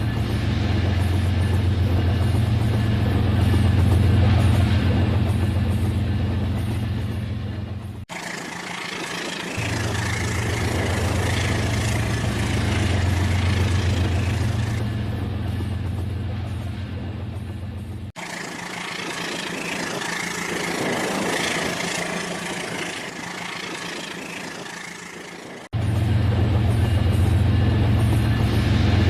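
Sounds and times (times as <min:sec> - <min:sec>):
rattling wheel noise: 0:07.8 - 0:14.8, 0:18.2 - 0:25.7
toy train motor hum: 0:08.1 - 0:14.8, 0:18.2 - 0:25.7.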